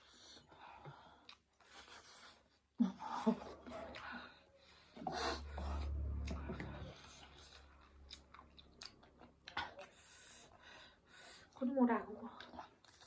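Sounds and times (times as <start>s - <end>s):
person chewing noodles: 0.0s - 11.6s, 12.3s - 13.0s
low rumble: 3.4s - 10.2s.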